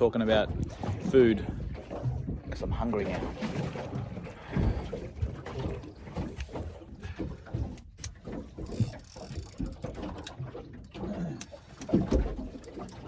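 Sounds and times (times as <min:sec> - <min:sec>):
fishing reel gears clicking: 0:08.7 - 0:09.8
knocks on small boat: 0:11.8 - 0:12.4.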